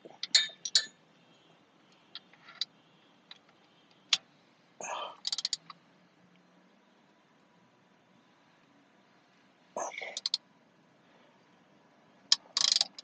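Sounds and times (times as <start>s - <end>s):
metal clicks of hand tools: 12.3s - 13.0s.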